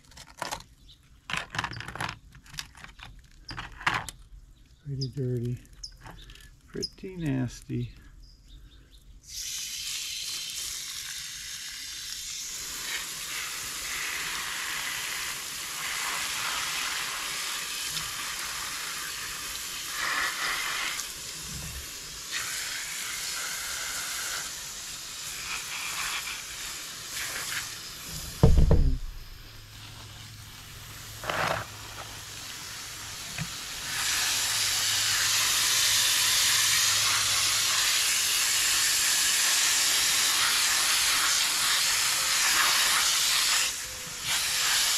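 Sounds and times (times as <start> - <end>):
water spraying from a hose: 9.2 - 44.9
loud thump: 28.1 - 29.7.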